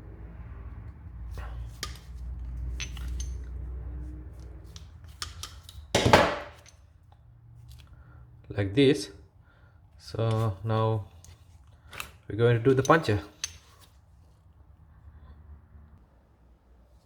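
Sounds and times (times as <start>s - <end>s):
tools clattering: 1.6s - 3.6s, 4.7s - 6.9s, 11.2s - 14.0s
tools clicking and knocking: 1.6s - 3.6s, 4.4s - 7.9s, 11.2s - 13.9s.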